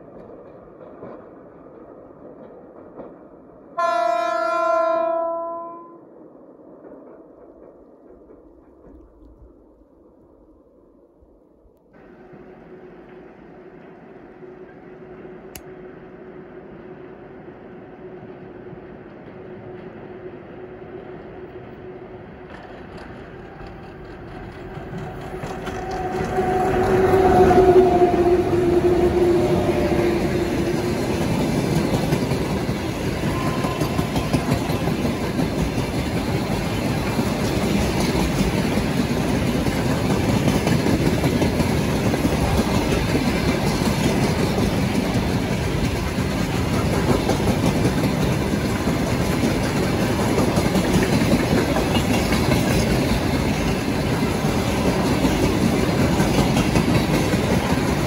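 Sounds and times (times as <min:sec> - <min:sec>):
train clattering on rails: 0:00.0 - 0:05.2, 0:06.7 - 0:10.0, 0:12.0 - 0:16.1, 0:17.8 - 0:58.0.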